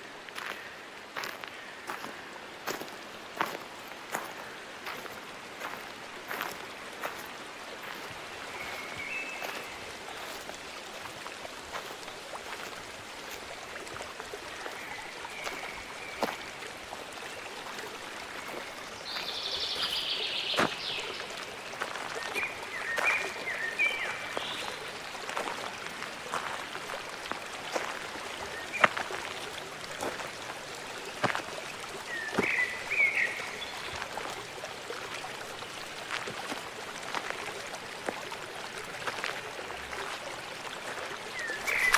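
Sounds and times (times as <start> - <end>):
stream rushing: 0.0 - 41.9
birds chirping: 0.4 - 10.6, 18.4 - 21.3, 41.3 - 41.9.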